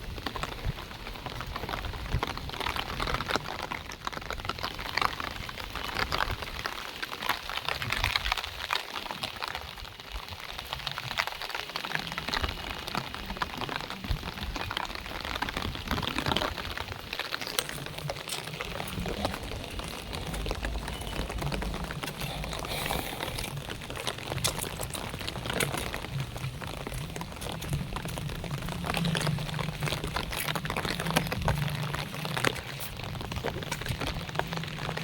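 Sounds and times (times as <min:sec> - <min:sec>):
heavy rain pouring: 0:00.0 - 0:35.0
low rumble: 0:17.7 - 0:35.0.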